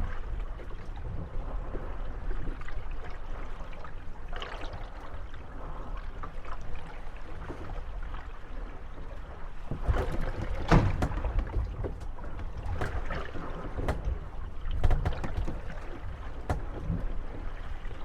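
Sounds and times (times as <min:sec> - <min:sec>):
water lapping against boat hulls: 0:00.0 - 0:18.0
boats creaking and knocking: 0:08.8 - 0:18.0.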